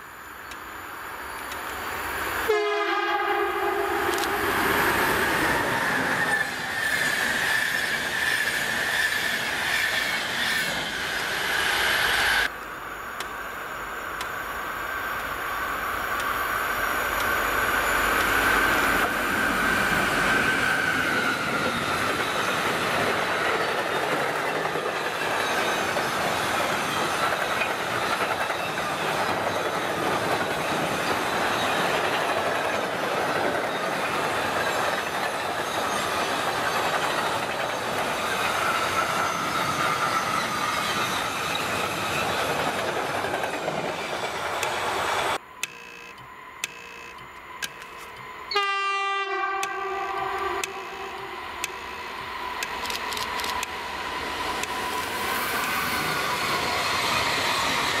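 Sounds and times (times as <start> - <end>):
locomotive horn blast: 2.5 - 4.3, 48.5 - 51.4
wheel squeal: 5.0 - 12.4, 33.5 - 42.8.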